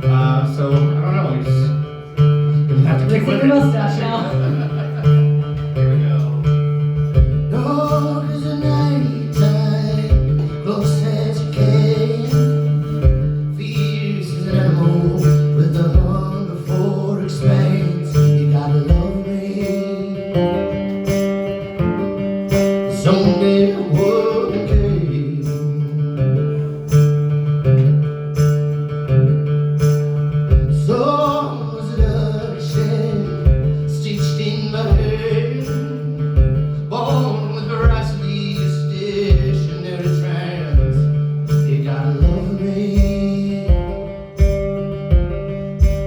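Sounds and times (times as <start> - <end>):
guitar: 0.0 - 46.0
steady drum beat: 3.7 - 8.2, 8.8 - 13.9, 15.2 - 16.9, 18.2 - 19.8, 24.0 - 25.6, 29.8 - 38.4, 39.2 - 46.0
person singing: 7.4 - 26.8, 30.7 - 44.7.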